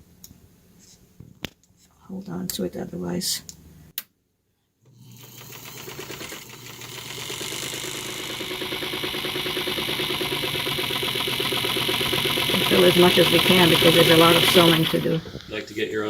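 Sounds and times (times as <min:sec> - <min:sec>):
sewing machine motor running: 0:05.0 - 0:15.6.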